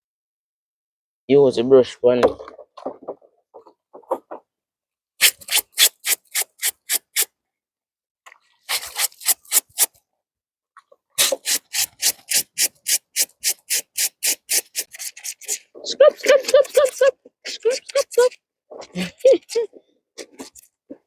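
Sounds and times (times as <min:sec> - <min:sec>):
brush scrubbing wet clothes: 0:05.2 - 0:07.3, 0:08.5 - 0:09.9, 0:11.2 - 0:18.4.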